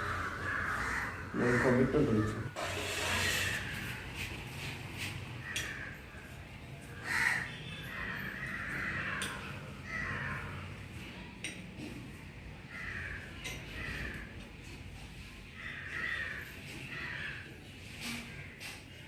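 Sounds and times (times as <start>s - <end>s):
crows cawing: 0.0s - 4.2s, 5.4s - 10.8s, 12.6s - 14.5s, 15.4s - 18.6s.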